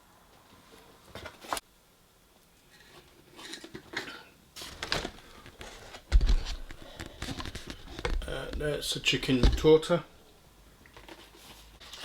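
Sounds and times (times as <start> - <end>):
food packaging rustling and clicking: 2.6 - 10.0, 10.8 - 12.0
heavy thud: 7.8 - 10.0.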